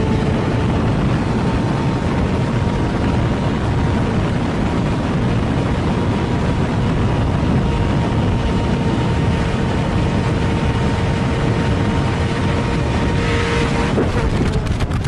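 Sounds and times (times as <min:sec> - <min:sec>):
motorcycle engine high-revving: 0:00.0 - 0:15.0
wind noise: 0:00.0 - 0:15.0.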